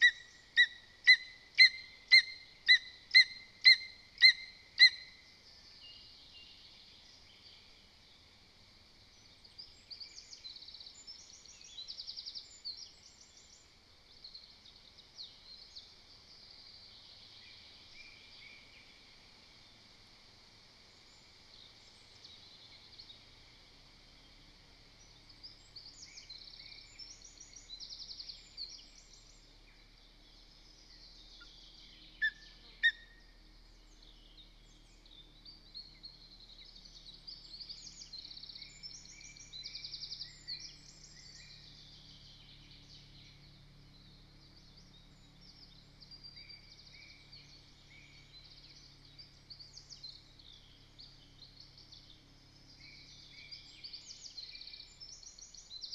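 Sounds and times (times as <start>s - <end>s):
loud sharp bird calls: 0.0s - 5.2s
songbirds trilling and chirping: 0.0s - 55.9s.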